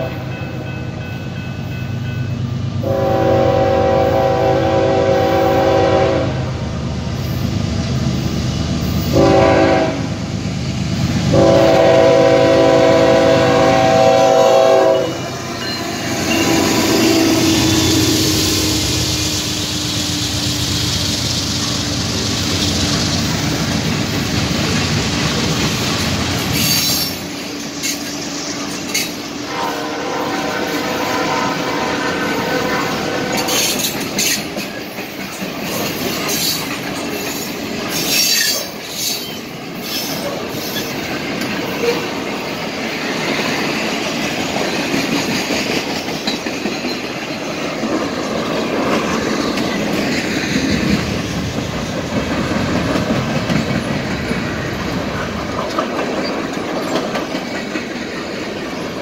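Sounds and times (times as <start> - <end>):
locomotive air horn blasts: 0.0 - 0.4, 2.8 - 6.6, 9.1 - 10.2, 11.3 - 15.4, 16.1 - 19.2, 29.5 - 33.9
train wheels clattering over joints: 33.4 - 59.0.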